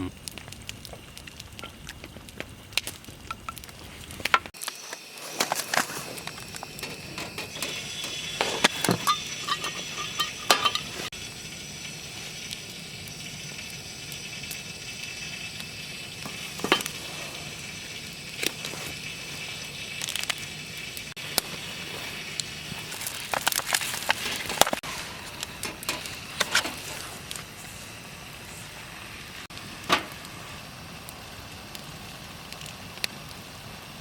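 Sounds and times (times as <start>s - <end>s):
food sizzling in a pan: 0.0s - 34.0s
utensils knocking against pan: 8.4s - 11.0s.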